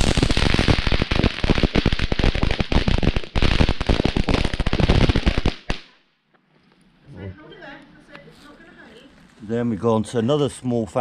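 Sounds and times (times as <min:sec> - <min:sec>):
fountain firework crackling: 0:00.0 - 0:05.9.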